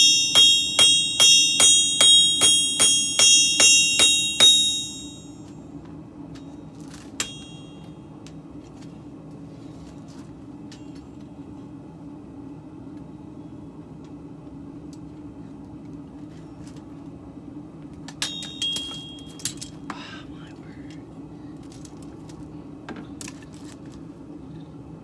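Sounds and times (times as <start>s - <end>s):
hammer striking steel: 0.0s - 5.4s, 7.2s - 7.9s, 18.2s - 19.6s
steady low hum: 0.0s - 25.0s.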